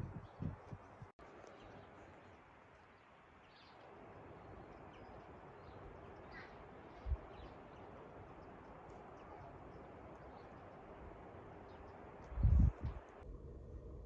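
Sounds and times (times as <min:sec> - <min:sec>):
faint bird chirps: 0:01.4 - 0:11.0.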